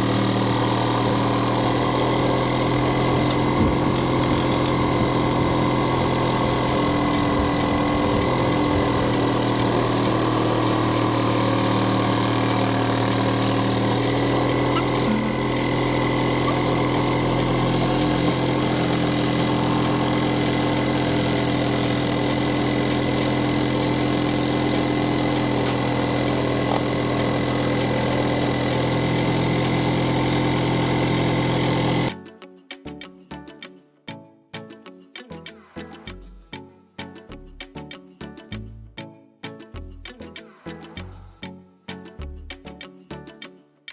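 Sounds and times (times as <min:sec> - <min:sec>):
electric drill motor hum: 0:00.0 - 0:32.1.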